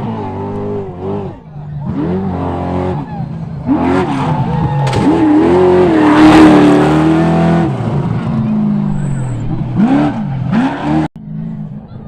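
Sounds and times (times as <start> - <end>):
race truck engine revving: 0.0 - 12.0.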